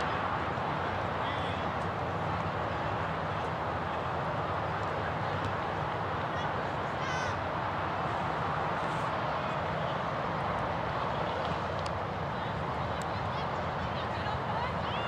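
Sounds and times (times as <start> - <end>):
noisy outdoor background: 0.0 - 15.0.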